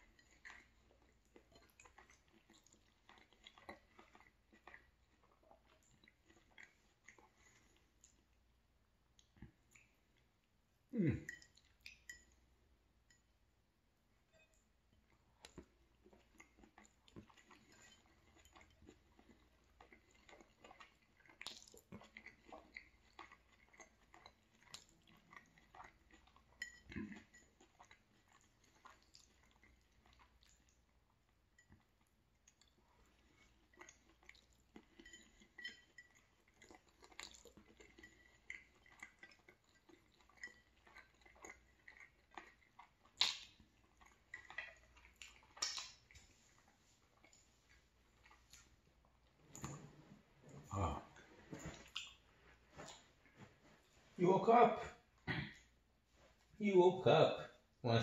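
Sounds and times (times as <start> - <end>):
quiet chewing: 0.0 - 12.5, 14.3 - 54.2
wet mouth sounds: 50.6 - 52.2.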